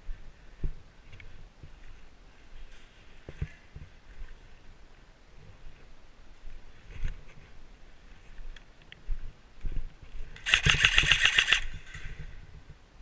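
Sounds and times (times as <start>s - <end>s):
gearbox whir: 10.4s - 11.9s
airsoft rifle full-auto burst: 10.4s - 12.0s.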